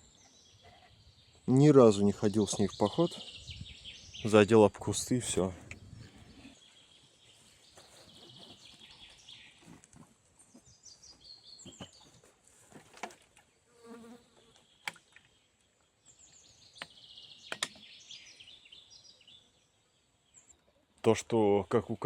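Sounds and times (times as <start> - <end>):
small birds chirping and trilling: 0.0 - 22.0
sharp snaps: 16.8 - 17.8.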